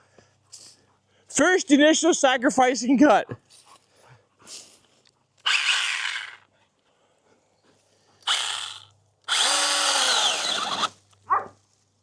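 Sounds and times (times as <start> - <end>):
mini chainsaw whirring: 5.4 - 6.5, 8.2 - 11.0.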